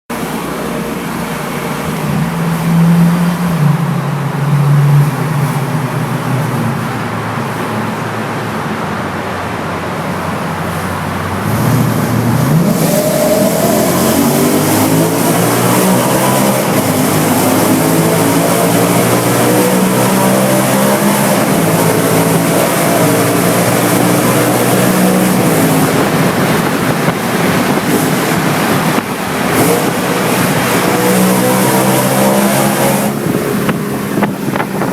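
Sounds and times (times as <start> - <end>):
car engine idling: 0.1 - 15.1
engine revving: 10.0 - 34.9.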